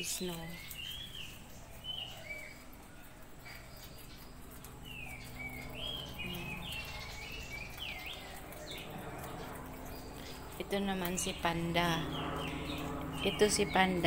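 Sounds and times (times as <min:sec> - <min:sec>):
birds chirping: 0:00.0 - 0:14.0
low background hum: 0:00.0 - 0:14.0.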